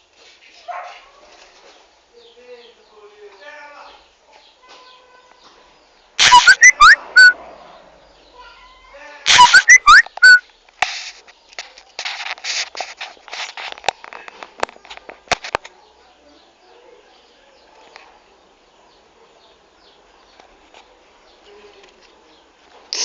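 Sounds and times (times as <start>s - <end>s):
crackling rustling noise: 0.0s - 2.0s, 9.3s - 15.8s, 20.1s - 23.0s
short rising whistles: 6.2s - 7.4s, 9.3s - 10.4s.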